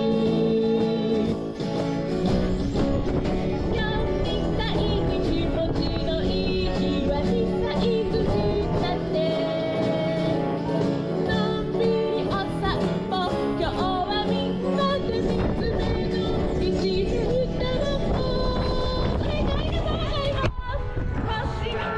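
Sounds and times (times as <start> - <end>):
person singing: 0.0 - 1.6, 3.6 - 21.9
wind on microphone: 0.0 - 9.8, 14.8 - 21.9
acoustic guitar: 0.0 - 21.9.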